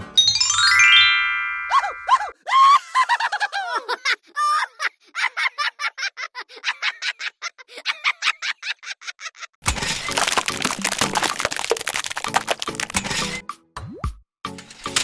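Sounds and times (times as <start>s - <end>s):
crackling noise: 9.7s - 13.4s.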